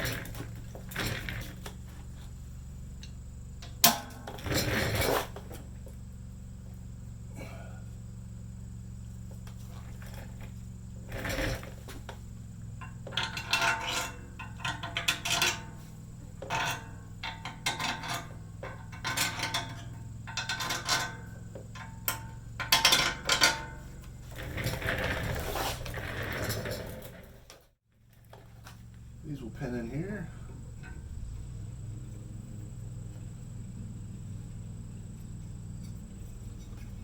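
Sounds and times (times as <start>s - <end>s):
steady low hum: 0.0s - 37.0s
metal clinking and clanking: 3.0s - 5.7s, 9.4s - 27.6s.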